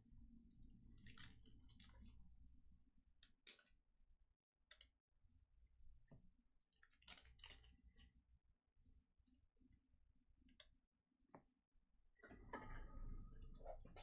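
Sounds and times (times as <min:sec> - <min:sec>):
low room hum: 0:00.0 - 0:04.3, 0:11.9 - 0:14.0.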